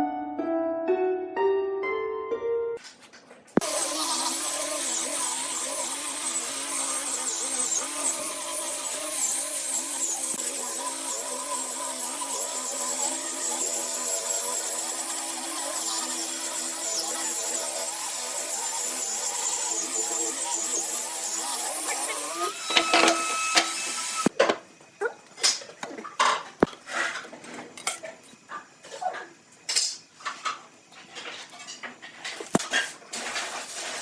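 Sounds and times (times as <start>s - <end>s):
small power tool running: 3.6s - 24.3s.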